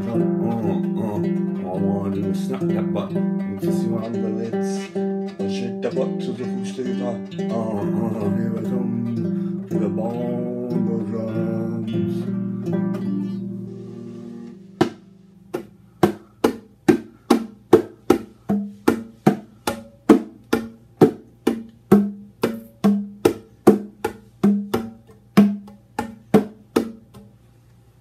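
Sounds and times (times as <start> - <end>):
bongo drums played by hand: 12.0 - 27.4.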